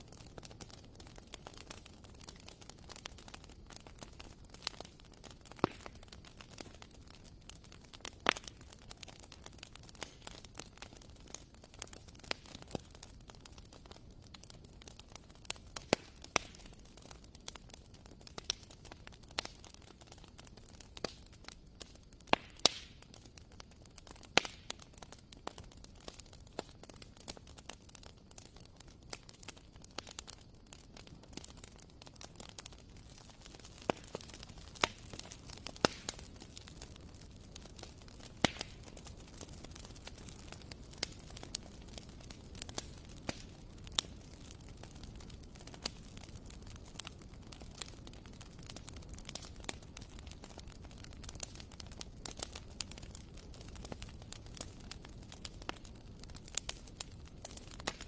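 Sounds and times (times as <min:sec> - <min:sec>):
logs crackling and popping: 0:00.0 - 0:58.0
fire flames rushing: 0:24.0 - 0:58.0.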